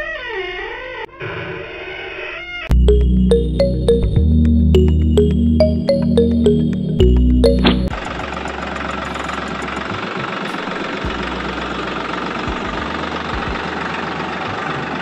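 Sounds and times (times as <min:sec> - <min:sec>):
low hum: 0:02.7 - 0:09.8
small tractor engine droning: 0:02.7 - 0:15.0.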